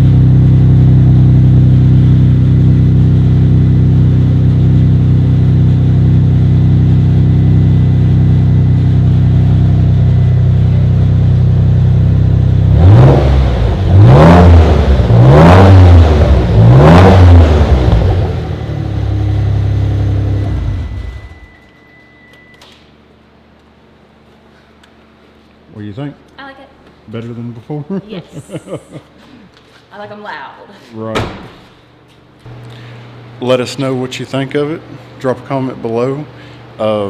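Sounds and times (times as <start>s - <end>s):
car engine idling and revving: 0.0s - 21.7s.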